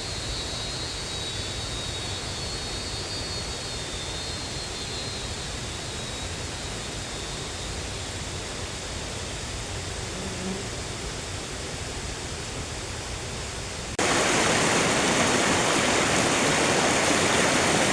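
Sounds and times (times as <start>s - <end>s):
flowing water rushing: 14.0s - 17.9s.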